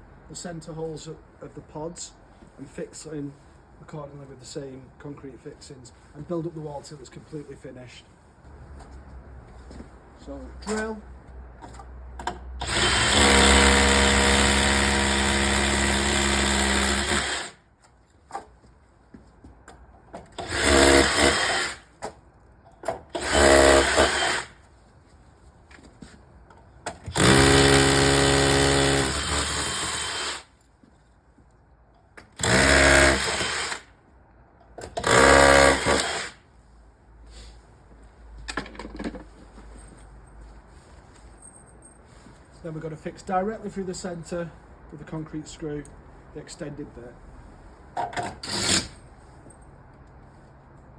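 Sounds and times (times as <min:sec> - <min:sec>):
power drill boring into concrete: 0:12.6 - 0:17.6, 0:20.4 - 0:21.8, 0:23.2 - 0:24.6, 0:27.1 - 0:30.5, 0:32.4 - 0:33.9, 0:35.0 - 0:36.4, 0:48.4 - 0:49.0.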